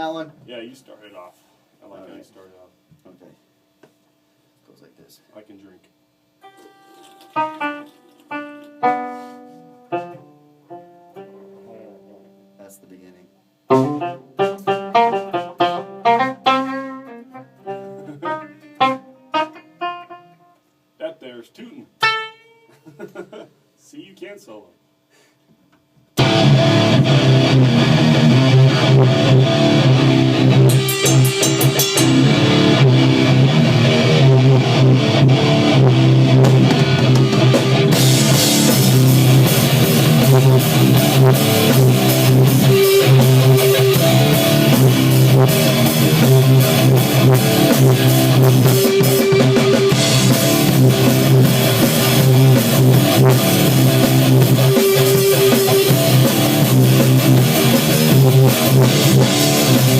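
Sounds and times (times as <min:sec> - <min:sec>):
rock music with guitar and drums: 0:13.7 - 0:20.2, 0:26.2 - 0:59.9.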